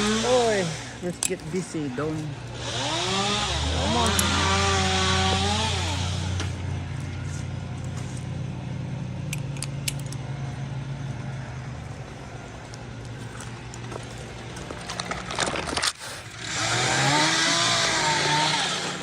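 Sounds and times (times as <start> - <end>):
chainsaw idling: 0.0 - 9.4, 10.1 - 19.0
light metallic clicks: 9.3 - 10.2.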